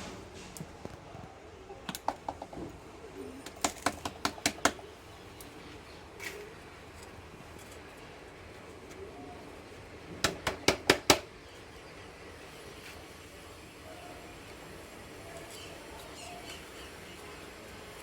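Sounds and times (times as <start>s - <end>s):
sharp clicks and taps: 3.4s - 4.8s
faint steady hiss: 11.3s - 18.0s.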